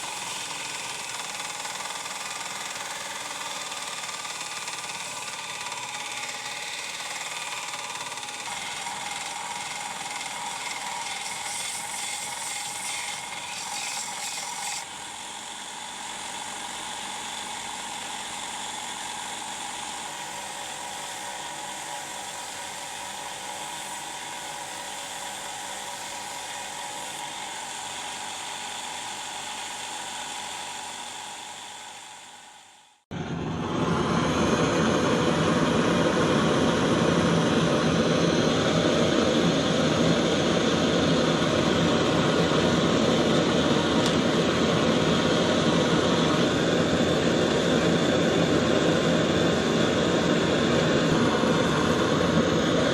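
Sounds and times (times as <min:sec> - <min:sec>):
power grinder on steel: 0:00.0 - 0:16.6.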